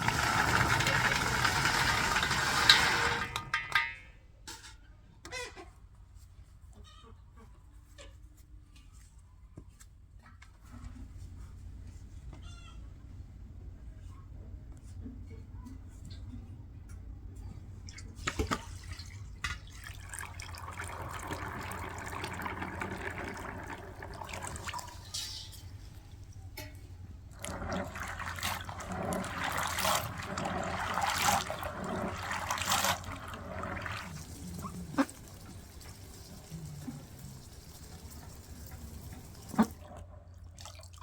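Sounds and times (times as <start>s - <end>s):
running water: 0.0s - 3.6s, 17.9s - 26.5s, 27.3s - 41.0s.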